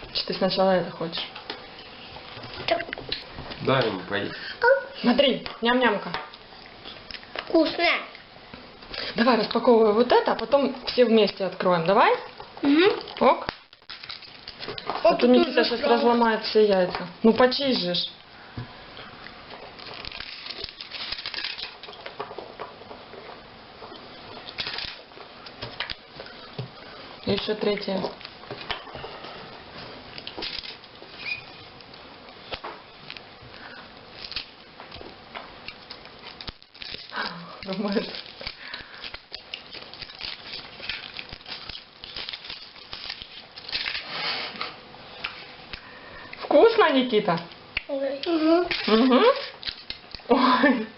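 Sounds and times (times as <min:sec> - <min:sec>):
foil wrapper crinkling: 0:08.9 - 0:18.1, 0:19.6 - 0:23.0, 0:23.9 - 0:28.7, 0:30.0 - 0:44.4, 0:48.7 - 0:50.3.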